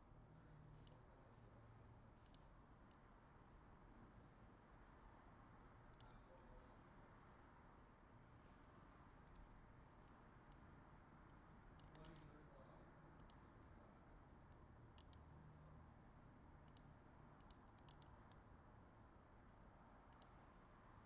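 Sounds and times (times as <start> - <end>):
faint sharp clicks: 11.8 - 12.3, 13.2 - 13.4, 15.0 - 15.3, 20.1 - 20.4.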